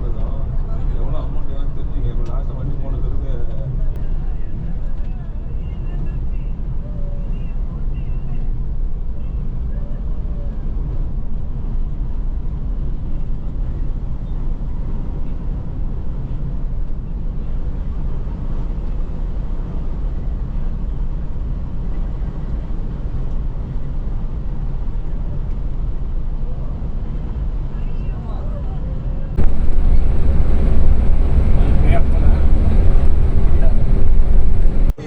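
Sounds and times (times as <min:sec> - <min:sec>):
coach engine rumbling: 0:00.0 - 0:06.8, 0:17.0 - 0:35.0.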